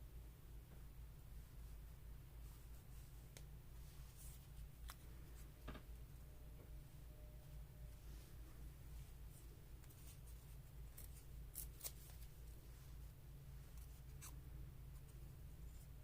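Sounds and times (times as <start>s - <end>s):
low steady hum: 0.0s - 16.0s
scissors snipping paper: 10.9s - 12.3s.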